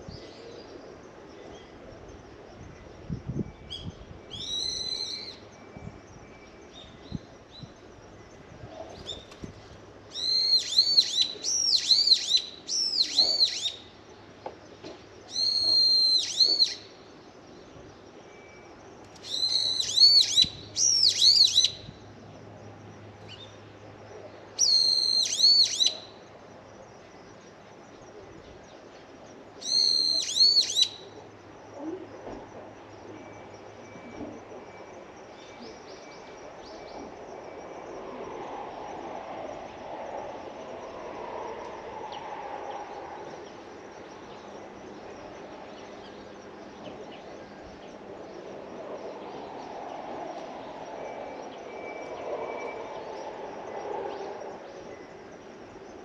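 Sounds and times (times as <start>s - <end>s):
bird calling shrilly: 4.3s - 5.4s, 10.1s - 13.9s, 15.3s - 17.0s, 19.2s - 21.9s, 24.6s - 26.2s, 29.6s - 31.2s.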